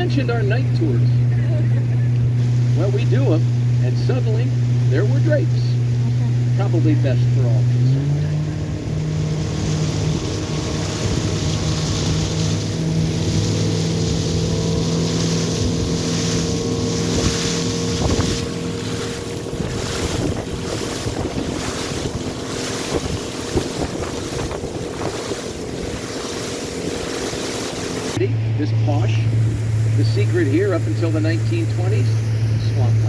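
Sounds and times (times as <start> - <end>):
boat engine running: 0.0 - 33.0
water rushing: 0.0 - 33.0
wind buffeting microphone: 8.0 - 28.2, 29.2 - 33.0.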